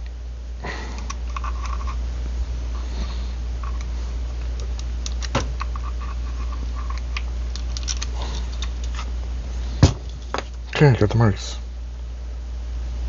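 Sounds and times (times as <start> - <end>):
steady low hum: 0.0 - 13.0
small metal parts clicking: 1.0 - 2.0, 3.6 - 9.1.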